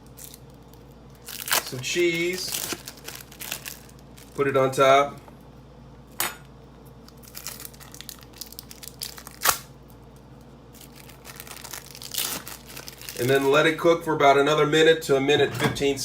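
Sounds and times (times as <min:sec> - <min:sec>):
plastic wrapper crinkling: 0:00.0 - 0:04.5, 0:07.0 - 0:13.7.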